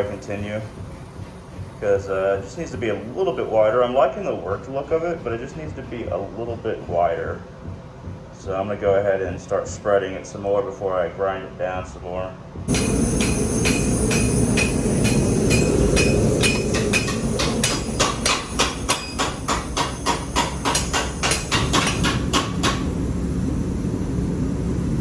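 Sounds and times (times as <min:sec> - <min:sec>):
hammer striking metal on anvil: 0:12.7 - 0:23.0
low rumble: 0:12.7 - 0:25.0.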